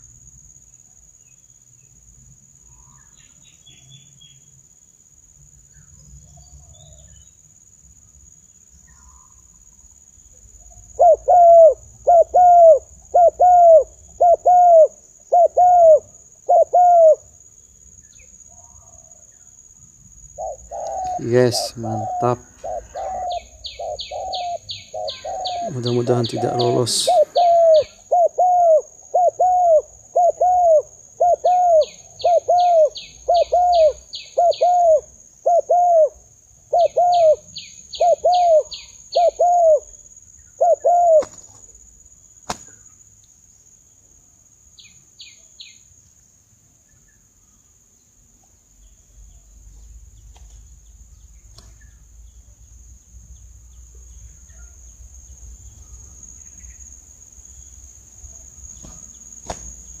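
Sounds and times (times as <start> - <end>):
high-pitched insect trill: 0.0 - 60.0
dove cooing: 10.8 - 17.3, 20.3 - 41.6.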